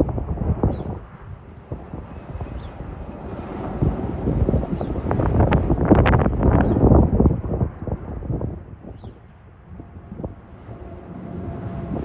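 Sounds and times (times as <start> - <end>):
wind buffeting microphone: 0.0 - 12.0
truck passing by: 10.0 - 12.0.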